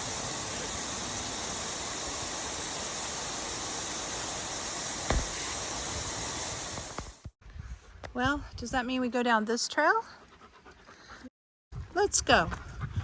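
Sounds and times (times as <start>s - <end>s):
steady rushing hiss: 0.0s - 7.4s
low thump: 5.1s - 5.5s.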